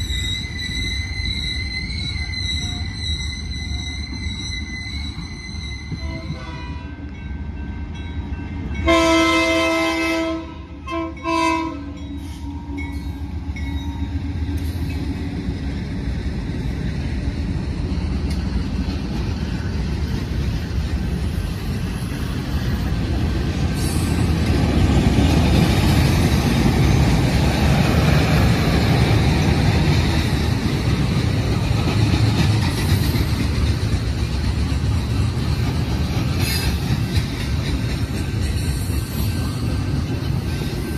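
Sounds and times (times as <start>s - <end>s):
train horn blasts: 5.8s - 7.2s, 8.8s - 12.8s
train wheels clacking on rails: 11.0s - 40.9s.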